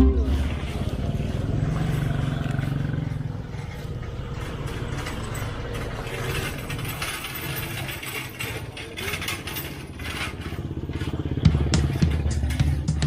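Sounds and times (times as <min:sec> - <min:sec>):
vehicles on a town street: 0:00.0 - 0:13.0
small clicks and clinks: 0:02.4 - 0:11.1.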